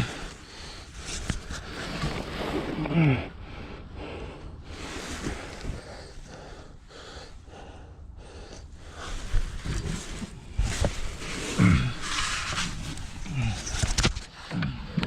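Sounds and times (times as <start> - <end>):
person breathing heavily: 0.0 - 1.8, 2.6 - 15.0
rough noisy rustle: 8.9 - 14.4.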